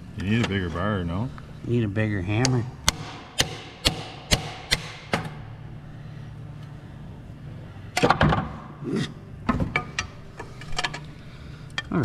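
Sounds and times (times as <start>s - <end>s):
hammer striking steel: 2.8s - 5.3s.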